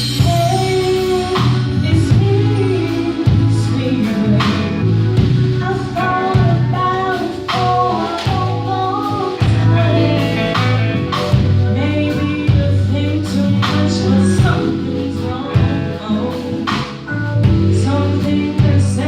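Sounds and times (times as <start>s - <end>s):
band playing soul groove: 0.0s - 19.0s.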